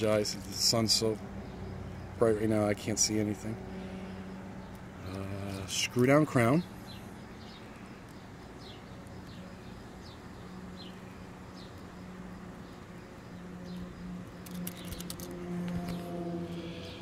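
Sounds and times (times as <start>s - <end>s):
steady low hum: 0.0s - 17.0s
sharp clicks: 14.3s - 16.0s.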